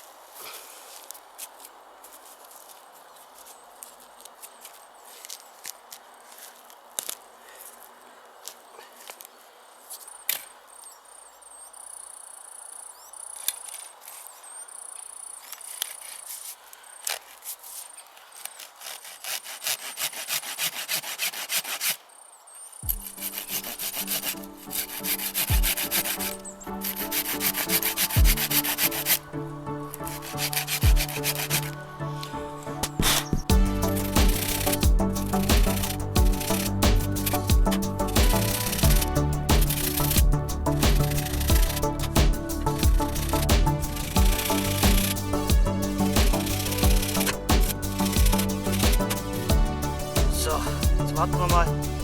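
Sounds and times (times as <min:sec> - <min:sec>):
hand saw rasping into wood: 0:18.8 - 0:22.0
background music: 0:22.9 - 0:52.0.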